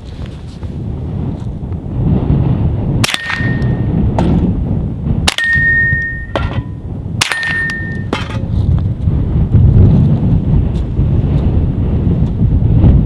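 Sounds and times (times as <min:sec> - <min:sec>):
wind rumble on microphone: 0:00.0 - 0:13.0
bullets clanging on steel targets: 0:03.0 - 0:03.9, 0:05.3 - 0:08.5.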